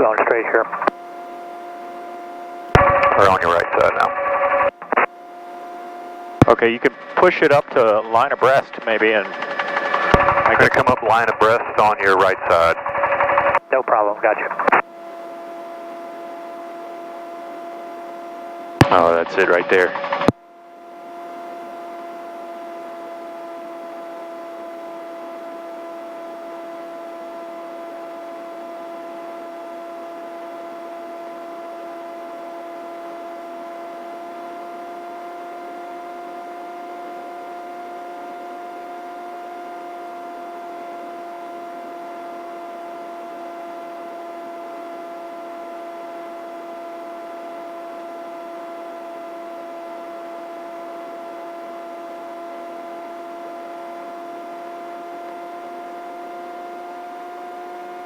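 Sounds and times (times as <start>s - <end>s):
helicopter hum through intercom: 0.0s - 5.2s, 6.4s - 14.8s, 18.8s - 20.3s.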